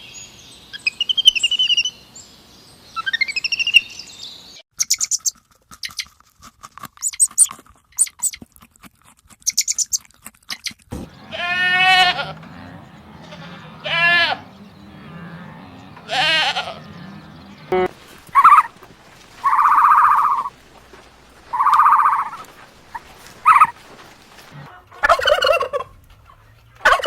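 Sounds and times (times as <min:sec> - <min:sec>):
livestock bleating: 0:11.0 - 0:24.7
steady low hum: 0:12.4 - 0:24.9.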